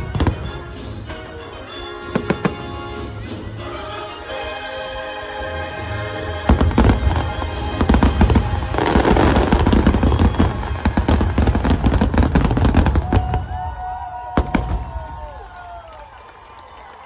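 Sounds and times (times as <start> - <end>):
fireworks bangs and crackling: 0.0 - 3.9, 6.5 - 15.8.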